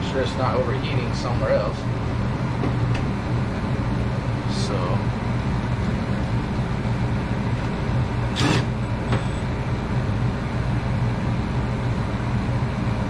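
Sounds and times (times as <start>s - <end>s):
gas furnace humming: 0.0s - 13.0s
furnace click: 8.4s - 9.5s.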